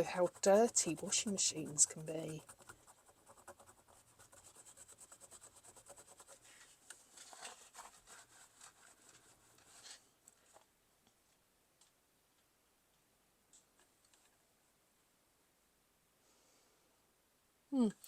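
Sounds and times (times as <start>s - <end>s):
rubbing and scratching on coin: 0.0s - 10.1s.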